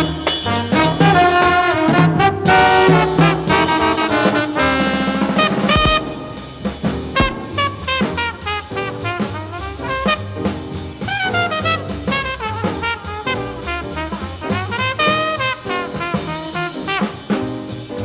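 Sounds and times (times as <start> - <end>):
jazz band playing: 0.0 - 18.0
sharp drum hit: 5.4 - 9.4.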